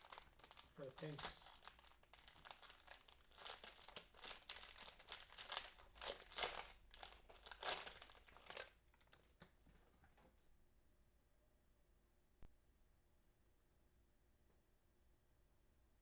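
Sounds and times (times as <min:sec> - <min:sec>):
cellophane wrapper crinkling: 0:00.0 - 0:09.4.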